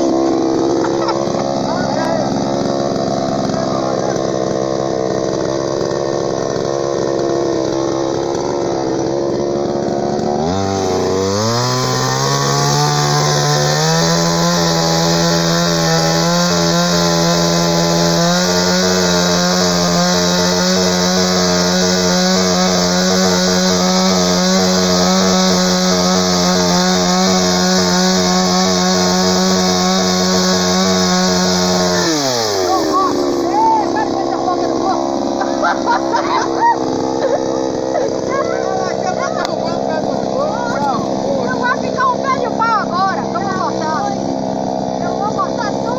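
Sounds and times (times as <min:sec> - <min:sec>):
chainsaw engine revving: 0:00.0 - 0:45.9.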